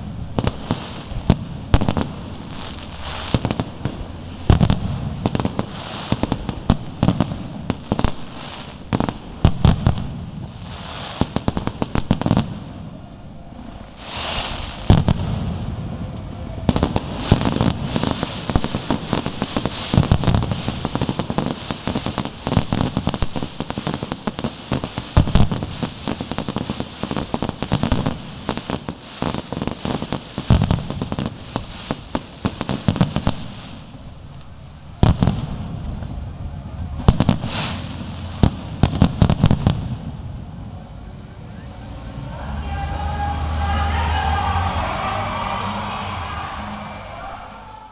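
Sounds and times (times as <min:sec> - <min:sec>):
firework crackle: 0:00.0 - 0:12.8, 0:13.6 - 0:40.1
firework booms and bangs: 0:00.3 - 0:12.8, 0:14.0 - 0:15.8.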